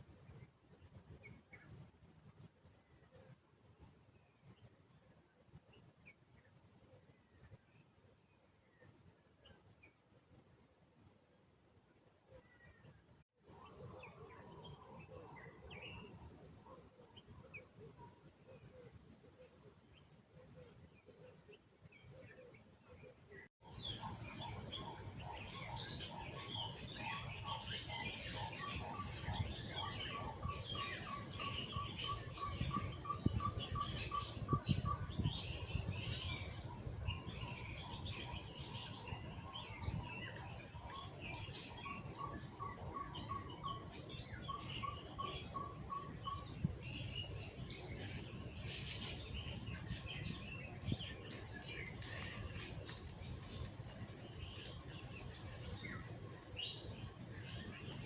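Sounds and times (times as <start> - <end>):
birds chirping: 13.6 - 58.0.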